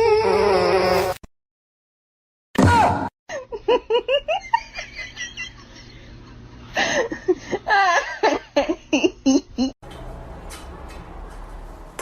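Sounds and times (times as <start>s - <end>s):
person laughing: 3.3s - 9.8s.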